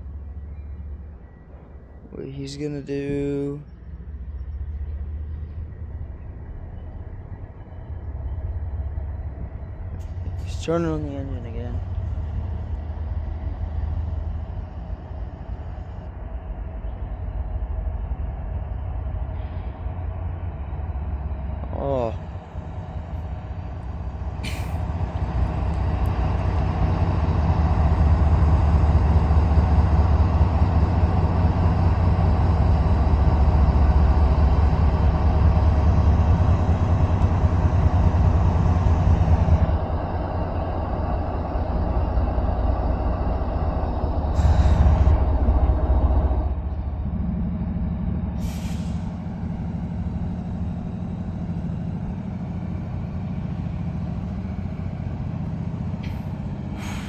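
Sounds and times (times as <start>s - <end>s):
diesel locomotive engine running: 0.0s - 57.0s
air brake hisses: 48.4s - 49.2s, 56.1s - 57.0s.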